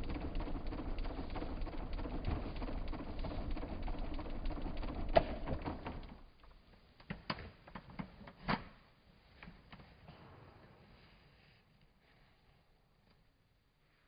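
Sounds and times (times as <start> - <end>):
electric fan air rush: 0.0 - 6.1.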